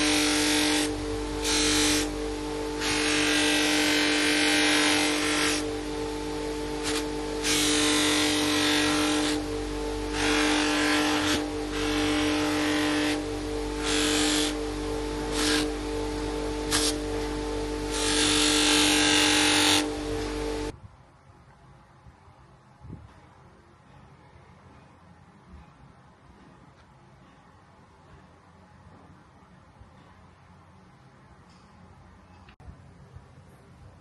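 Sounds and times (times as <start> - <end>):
power tool humming: 0.0 - 20.7.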